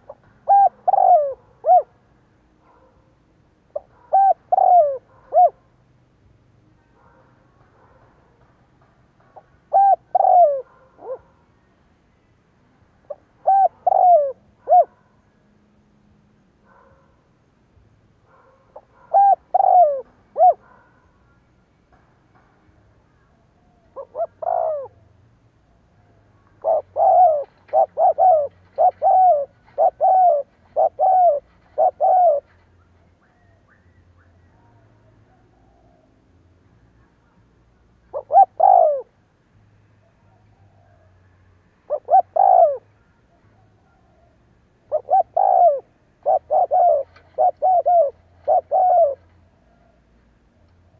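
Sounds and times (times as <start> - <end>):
dove cooing: 0.0 - 2.1, 3.7 - 5.7, 9.3 - 11.4, 13.1 - 15.1, 18.3 - 21.1, 23.3 - 25.2, 26.3 - 36.1, 38.0 - 39.2, 41.8 - 50.0.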